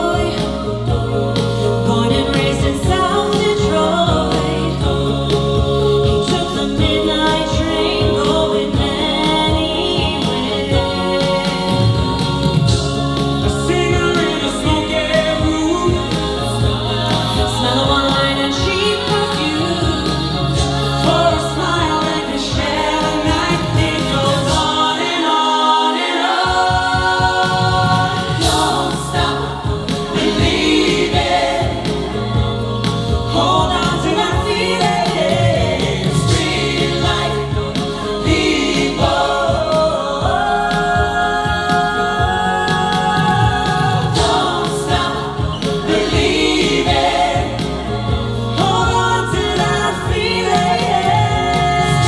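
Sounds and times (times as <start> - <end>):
band backing music: 0.0 - 52.0
vocal ensemble singing in harmony: 0.0 - 52.0.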